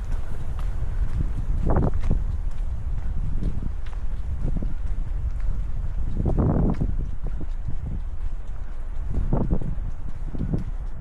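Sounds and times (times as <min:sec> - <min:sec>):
soft footsteps: 0:00.0 - 0:11.0
wind buffeting microphone: 0:00.0 - 0:11.0.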